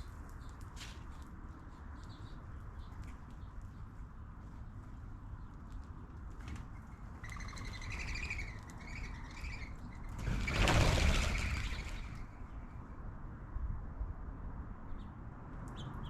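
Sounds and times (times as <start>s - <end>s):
small birds chattering: 6.8s - 12.2s.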